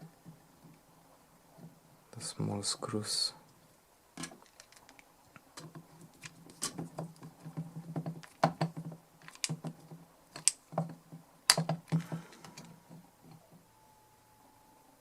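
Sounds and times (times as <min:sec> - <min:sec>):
screws clicking on metal case: 0:08.2 - 0:09.7.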